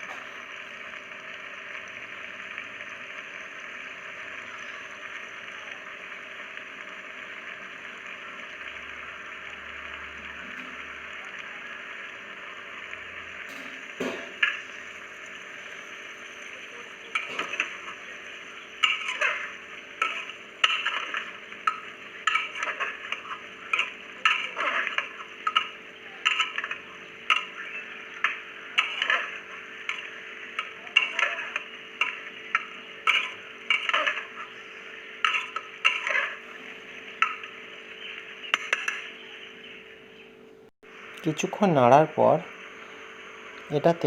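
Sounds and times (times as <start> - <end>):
frying sizzle: 0.0 - 40.1, 40.8 - 44.0
spatula scraping a pot: 18.8 - 27.5, 33.1 - 34.5, 35.2 - 36.4.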